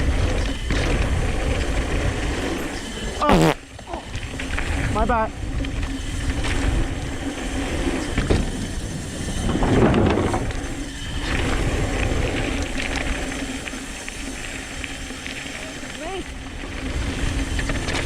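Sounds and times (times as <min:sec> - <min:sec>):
bike tyres on dirt: 0:00.0 - 0:18.0
wind on microphone: 0:04.0 - 0:13.2.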